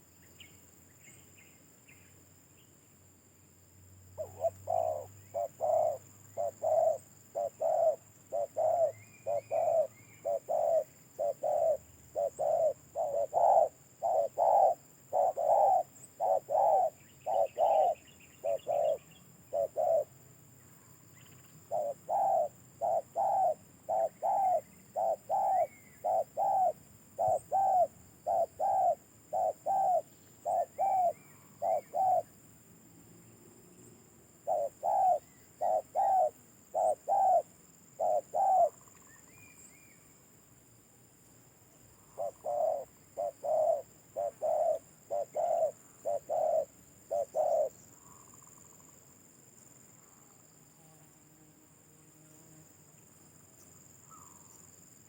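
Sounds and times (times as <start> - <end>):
dove cooing: 4.2 - 20.2, 21.6 - 32.4, 34.4 - 38.9, 42.0 - 48.8.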